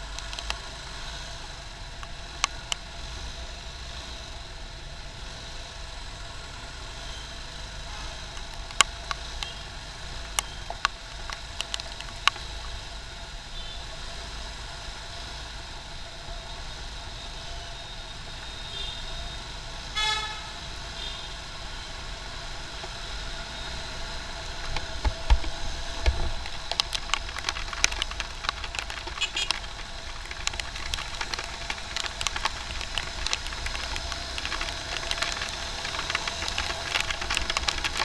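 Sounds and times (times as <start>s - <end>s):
sharp ticks and knocks: 0.0s - 0.6s, 8.3s - 9.6s, 10.2s - 12.5s, 24.5s - 38.0s
road traffic engines humming: 0.0s - 38.0s
vehicle horn beep: 20.0s - 21.3s.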